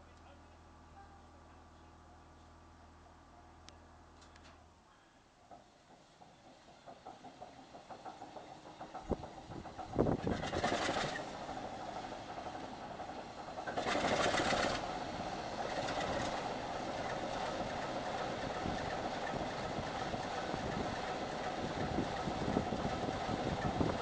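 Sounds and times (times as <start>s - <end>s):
diesel locomotive engine idling: 0.0s - 24.0s
loud rushes of engine noise: 9.6s - 24.0s.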